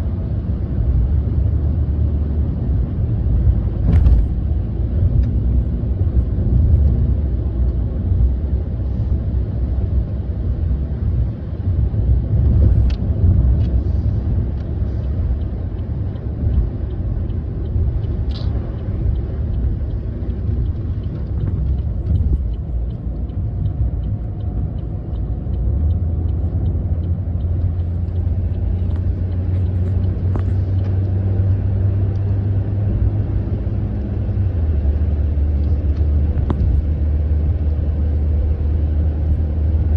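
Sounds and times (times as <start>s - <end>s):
road and engine rumble: 0.0s - 39.9s
sharp clicks and faint ticks: 12.5s - 32.4s, 35.6s - 36.8s.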